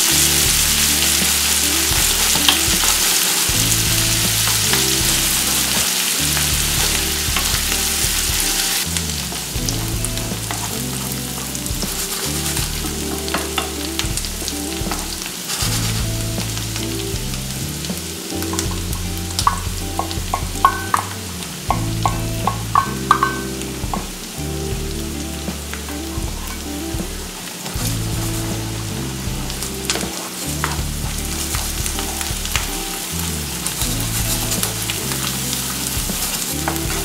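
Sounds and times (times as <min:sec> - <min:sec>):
meat sizzling in a pan: 0:00.0 - 0:37.0
soft background music: 0:00.0 - 0:37.0
wooden spoon scraping a pan: 0:14.9 - 0:16.2.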